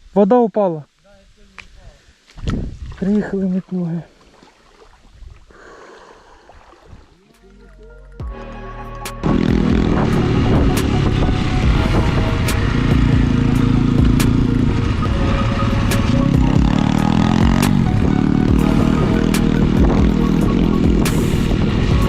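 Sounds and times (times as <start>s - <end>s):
dirt bike engine revving: 9.2s - 22.0s.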